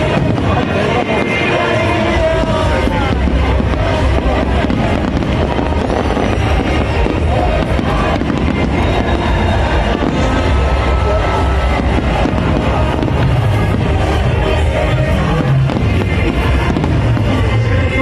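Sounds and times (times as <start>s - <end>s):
fireworks bursting and crackling: 0.0s - 18.0s
loud music: 0.0s - 18.0s.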